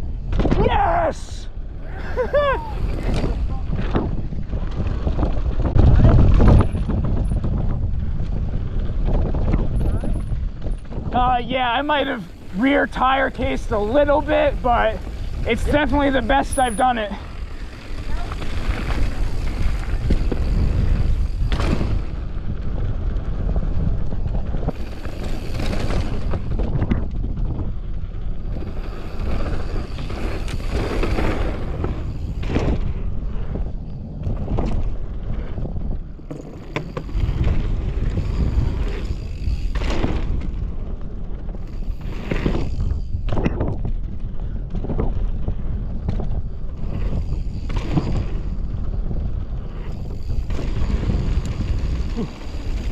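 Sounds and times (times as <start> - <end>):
bike tyre rumble: 0.0 - 52.9
wind buffeting microphone: 0.0 - 52.9
bike clattering over bumps: 2.2 - 11.2, 11.8 - 52.9.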